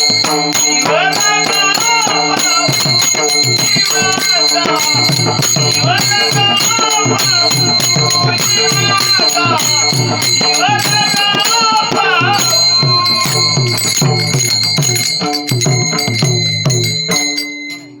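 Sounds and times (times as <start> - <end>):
drum beat: 0.0 - 18.0
hand cymbals ringing: 0.0 - 18.0
girl singing: 10.4 - 13.8.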